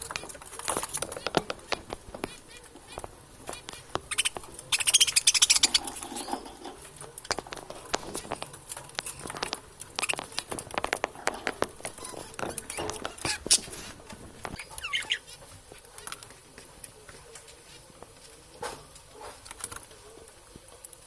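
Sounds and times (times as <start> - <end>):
budgerigars chattering: 0.0 - 6.0, 14.5 - 15.4.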